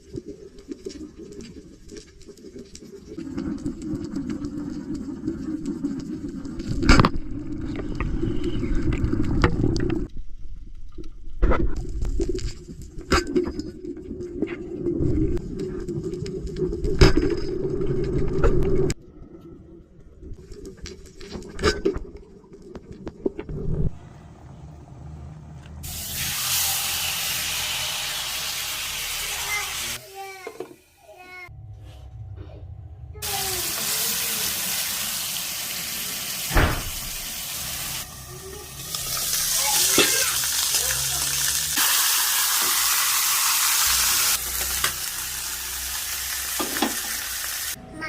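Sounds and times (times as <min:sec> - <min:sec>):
rushing hissing water: 0:25.8 - 0:30.0, 0:33.2 - 0:44.6
sharp thump: 0:36.5 - 0:37.1.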